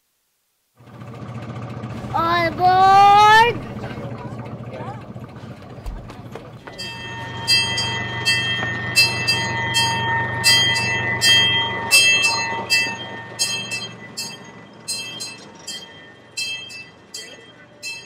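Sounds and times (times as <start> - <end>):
train running: 0.8 - 18.0
train bell clanging: 6.4 - 18.0.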